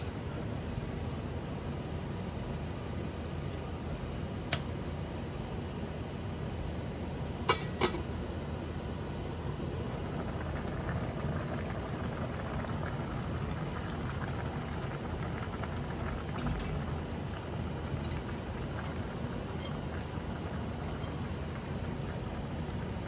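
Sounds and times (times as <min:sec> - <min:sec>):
liquid bubbling: 0:08.9 - 0:23.0.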